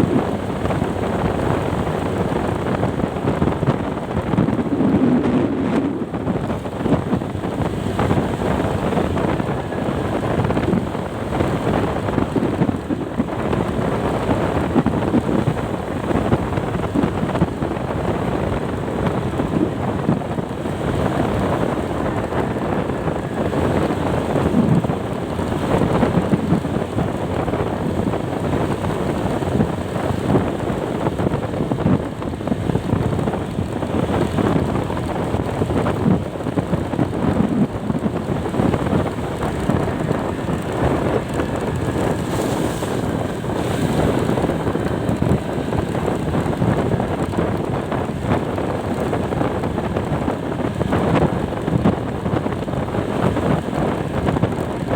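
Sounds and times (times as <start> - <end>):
vehicle road noise: 0.0 - 54.9
wind over microphone: 0.0 - 54.9
rain: 32.2 - 54.9.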